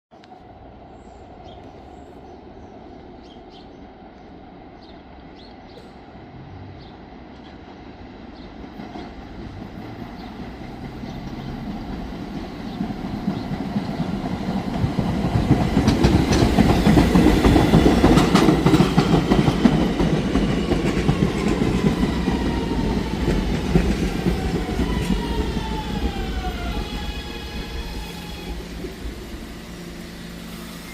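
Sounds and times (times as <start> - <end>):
train wheels clacking on rails: 8.4 - 30.4.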